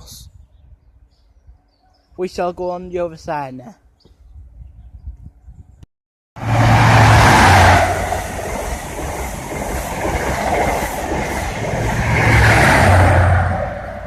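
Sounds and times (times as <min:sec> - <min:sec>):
train passing at speed: 0:06.4 - 0:14.0.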